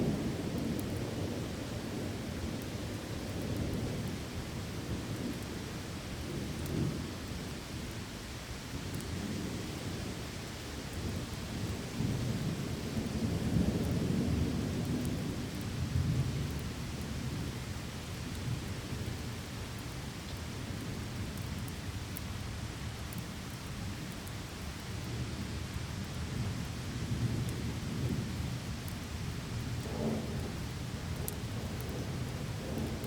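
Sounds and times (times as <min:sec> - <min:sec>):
steady rain: 0:00.0 - 0:33.0
rolling thunder: 0:29.6 - 0:33.0.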